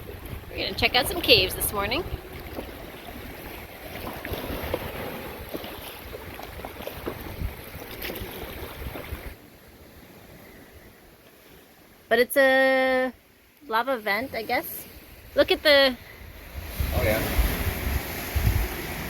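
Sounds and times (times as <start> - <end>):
wind buffeting microphone: 0.0 - 9.4, 14.3 - 19.0
water sounds: 0.0 - 19.0.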